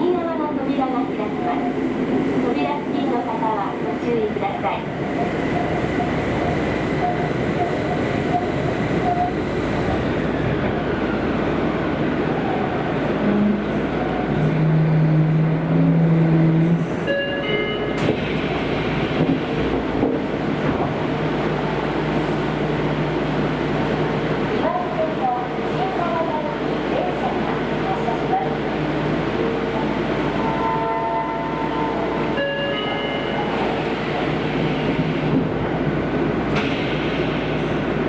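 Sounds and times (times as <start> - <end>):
train rumbling through tunnel: 0.0 - 38.0.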